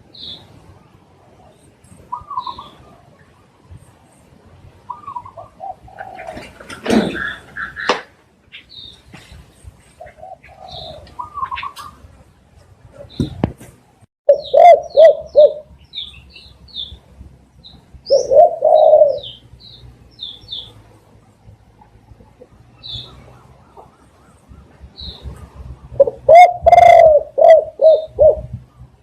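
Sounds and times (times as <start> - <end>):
dove cooing: 1.3 - 3.2, 4.9 - 7.9, 10.0 - 12.1, 14.3 - 15.7, 18.0 - 19.5, 22.2 - 28.8.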